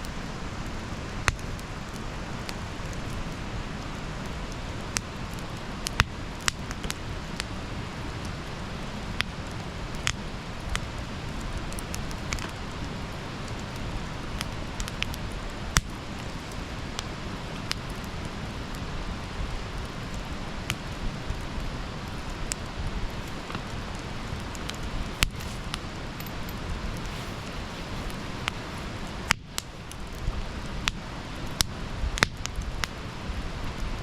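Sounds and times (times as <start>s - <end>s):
campfire crackles and pops: 0.0s - 34.0s
campfire hissing: 0.0s - 34.0s.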